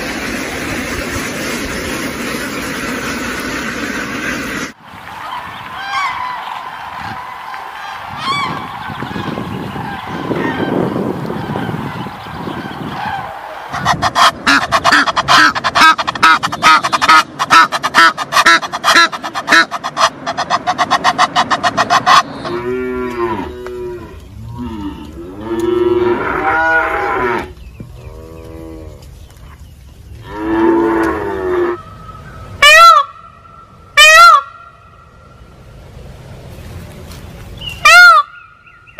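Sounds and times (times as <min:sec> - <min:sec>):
cranes trumpeting: 0:00.0 - 0:29.1, 0:30.2 - 0:35.8, 0:37.6 - 0:38.9
cattle mooing: 0:22.4 - 0:29.1.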